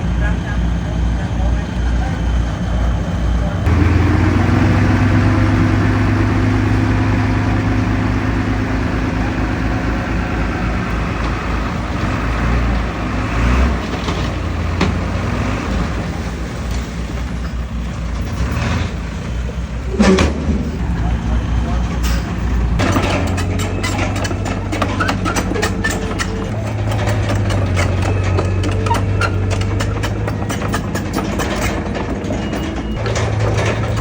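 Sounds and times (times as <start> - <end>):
diesel engine running: 0.0 - 34.0
metallic knocks: 21.8 - 34.0.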